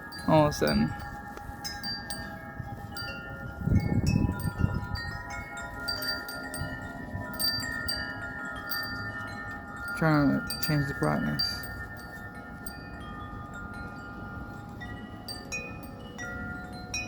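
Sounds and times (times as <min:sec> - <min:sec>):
gusty wind: 0:00.0 - 0:17.0
metal wind chimes ringing: 0:00.0 - 0:17.0.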